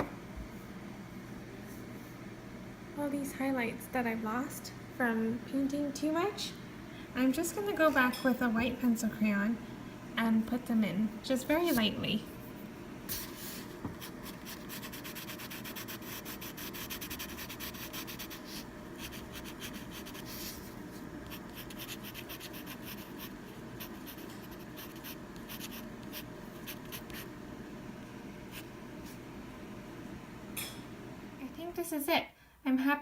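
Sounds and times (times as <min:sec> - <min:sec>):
coloured pencil scratching on paper: 0:14.0 - 0:20.7, 0:21.3 - 0:27.3.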